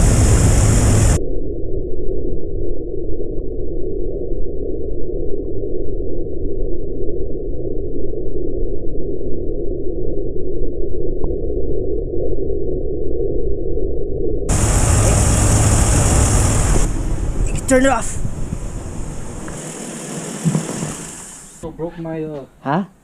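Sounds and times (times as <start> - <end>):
muffled car engine idling: 0.0 - 1.2, 14.5 - 21.6.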